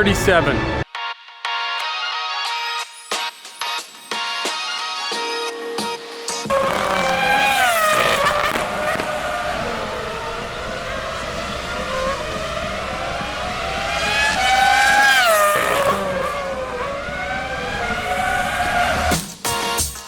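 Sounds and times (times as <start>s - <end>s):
motorcycle passing close: 6.5s - 19.1s
racing motorcycle engines revving: 6.5s - 19.2s.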